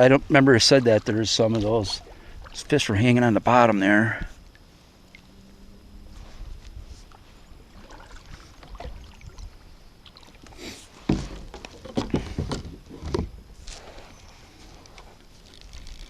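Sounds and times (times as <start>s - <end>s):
kayak swishing through water: 0.0s - 3.2s, 6.0s - 16.0s
water and wind rumble: 0.0s - 16.0s
knocks against kayak hull: 11.1s - 13.3s.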